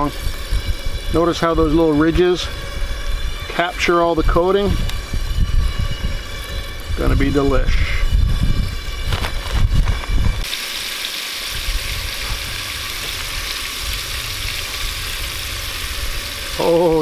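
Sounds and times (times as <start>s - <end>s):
low rumble: 0.0s - 10.5s
fish sizzling in hot oil: 0.0s - 17.0s.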